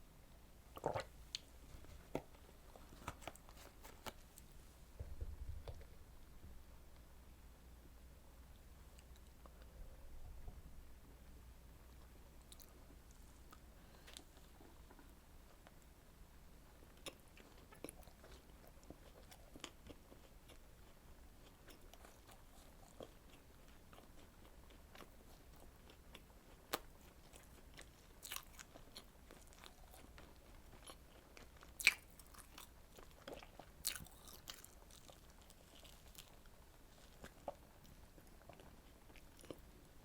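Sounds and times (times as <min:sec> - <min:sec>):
chewing and biting: 0:17.0 - 0:39.7.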